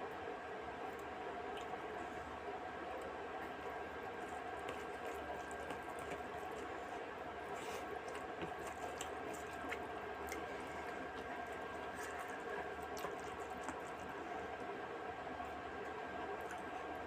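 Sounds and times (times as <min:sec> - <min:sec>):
faint steady hum: 0:00.0 - 0:17.0
wet chewing and squishing: 0:03.0 - 0:14.7, 0:15.8 - 0:17.0.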